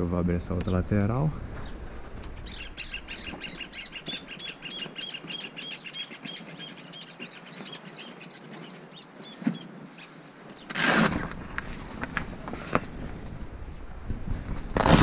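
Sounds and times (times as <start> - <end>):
bird chirping: 1.5 - 10.7.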